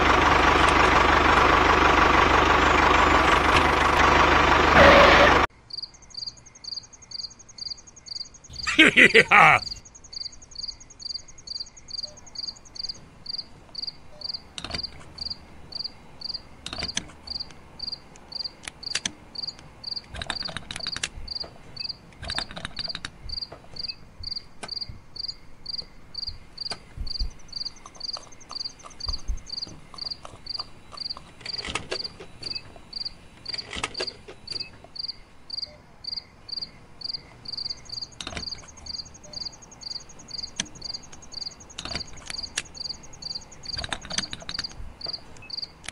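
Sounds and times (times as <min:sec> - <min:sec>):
cricket chirping: 0:05.5 - 0:08.8, 0:09.7 - 0:45.8
plastic toys clicking and knocking: 0:20.1 - 0:21.2, 0:22.2 - 0:23.2, 0:40.5 - 0:42.8, 0:43.6 - 0:45.2.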